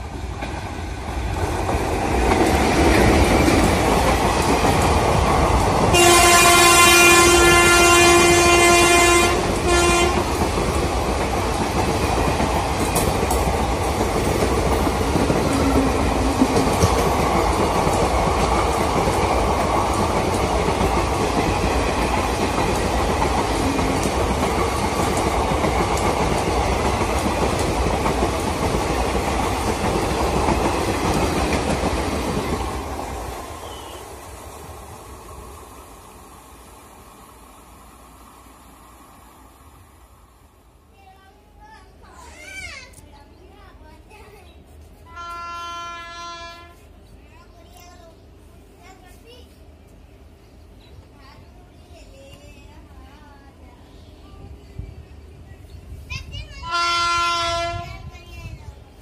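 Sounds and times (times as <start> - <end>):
train wheels on rails: 0.0 - 59.0
train horn blast: 5.9 - 10.4, 45.1 - 46.8, 56.7 - 58.1.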